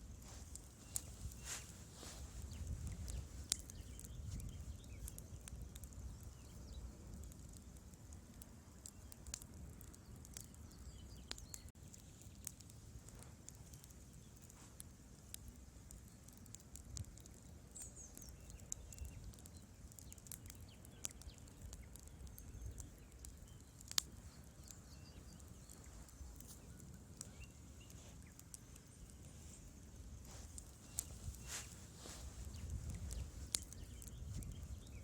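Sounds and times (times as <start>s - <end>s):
low rumble of flames: 0.0s - 35.0s
wood fire crackling: 0.0s - 35.0s.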